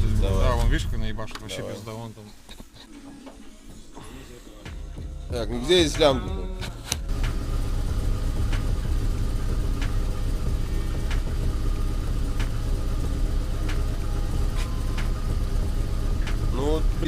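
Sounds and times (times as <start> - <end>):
petrol engine idling: 4.0 - 17.0
sharp engine clicks: 6.6 - 17.0.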